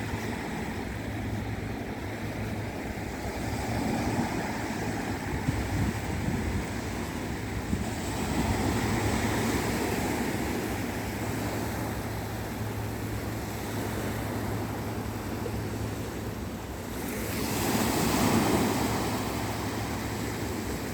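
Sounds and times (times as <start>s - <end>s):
wind on microphone: 0.0s - 10.4s
sea waves washing in: 0.0s - 20.9s.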